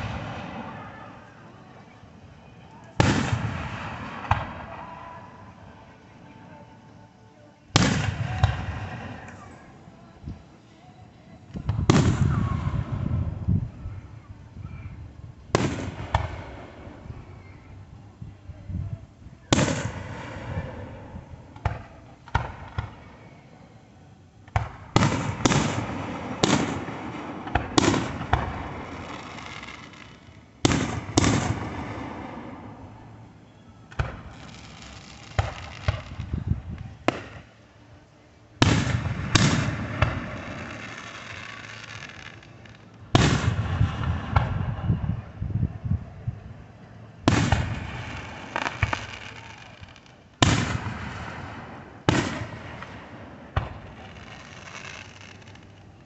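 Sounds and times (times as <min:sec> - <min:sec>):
fireworks bangs: 0:00.0 - 0:01.3, 0:03.0 - 0:05.2, 0:07.7 - 0:09.7, 0:11.5 - 0:14.0, 0:14.7 - 0:17.7, 0:19.5 - 0:23.2, 0:24.4 - 0:37.6, 0:38.6 - 0:45.8, 0:47.2 - 0:56.0.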